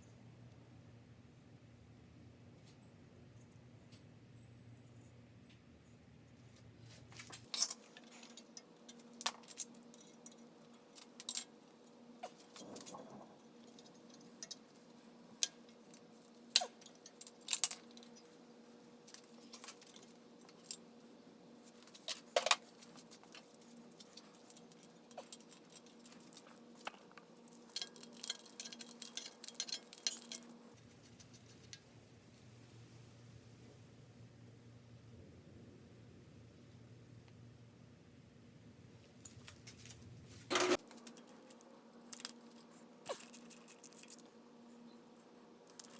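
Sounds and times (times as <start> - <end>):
faint steady hum: 0.0 - 45.9
metal tools clinking: 21.9 - 30.6.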